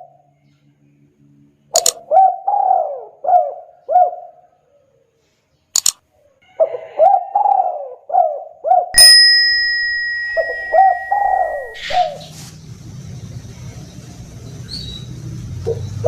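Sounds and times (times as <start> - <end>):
dove cooing: 2.0 - 4.6, 6.6 - 8.9, 10.7 - 12.3
bell struck: 9.0 - 12.1.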